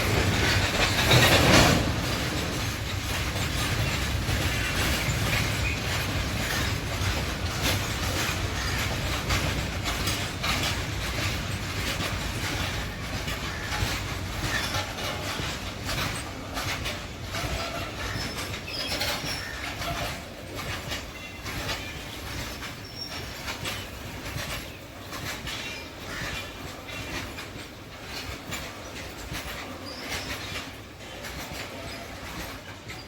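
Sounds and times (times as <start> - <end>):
train wheels clattering on rails: 0.0 - 33.0
wheel squeals: 0.0 - 33.0.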